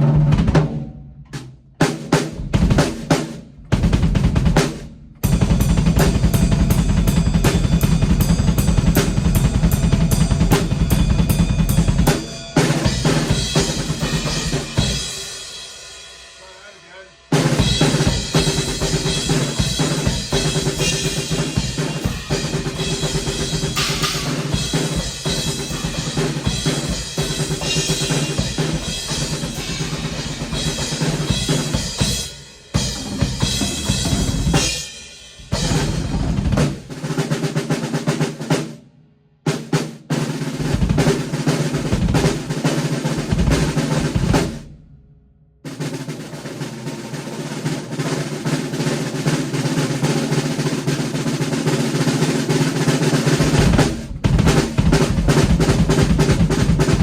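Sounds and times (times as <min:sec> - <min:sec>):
drum kit playing: 0:00.0 - 0:45.0, 0:45.6 - 0:57.0
cymbals ringing: 0:06.0 - 0:35.9.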